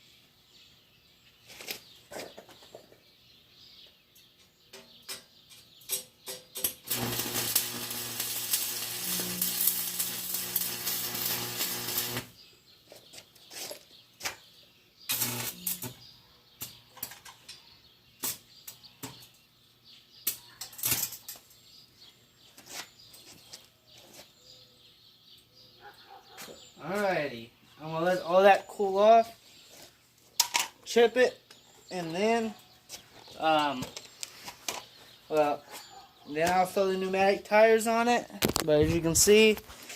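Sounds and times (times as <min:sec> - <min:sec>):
arc welder hissing: 0:06.8 - 0:12.4, 0:15.1 - 0:16.0.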